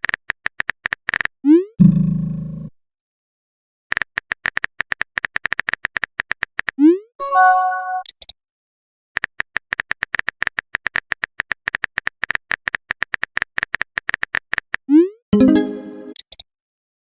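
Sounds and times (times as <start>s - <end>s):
phone keyboard typing clicks: 9.2s - 14.8s.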